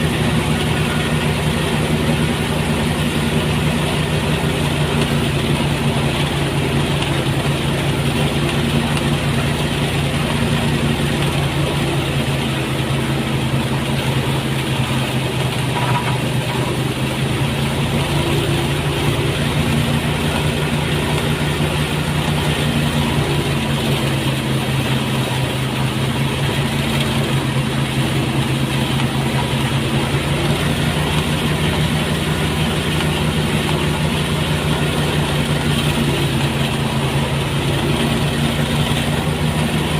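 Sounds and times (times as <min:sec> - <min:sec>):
threshing machine engine humming: 0:00.0 - 0:39.9.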